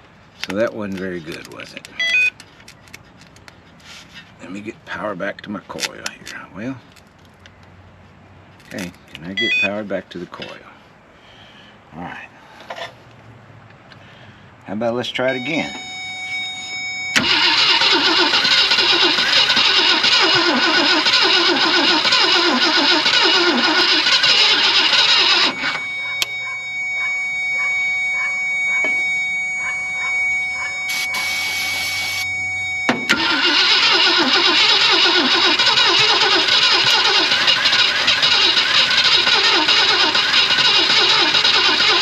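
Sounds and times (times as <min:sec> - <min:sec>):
starter motor cranking engine: 0:17.1 - 0:26.4, 0:33.0 - 0:42.0.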